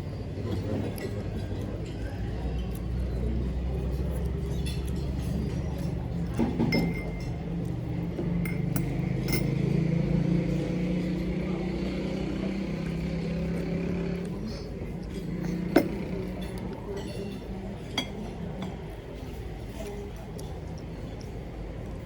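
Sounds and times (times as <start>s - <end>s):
tableware clinking: 6.4s - 7.5s, 8.4s - 9.8s, 15.6s - 18.8s.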